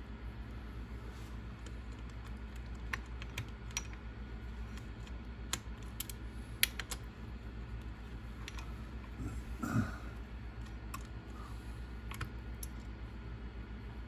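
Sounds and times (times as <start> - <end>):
low steady hum: 0.0 - 14.0
small parts clicking and tapping: 1.6 - 7.1, 7.8 - 8.7.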